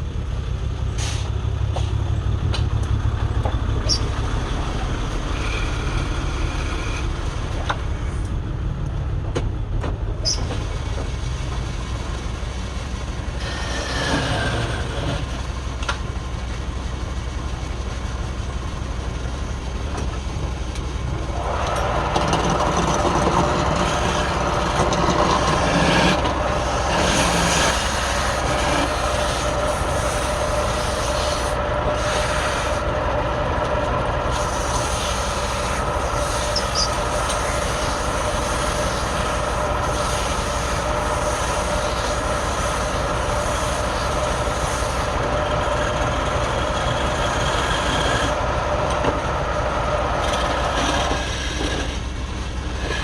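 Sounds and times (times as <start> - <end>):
wood lathe running: 2.9 - 8.3, 12.2 - 16.5, 20.5 - 53.0.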